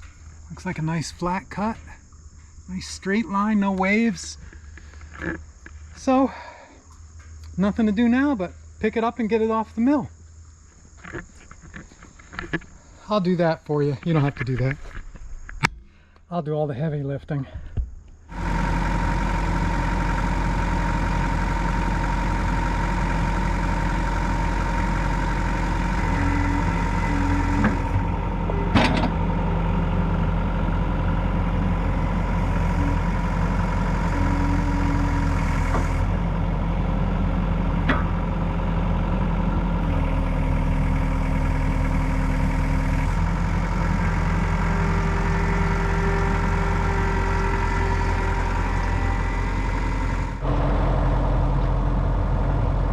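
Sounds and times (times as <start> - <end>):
engine idling: 18.3 - 52.9.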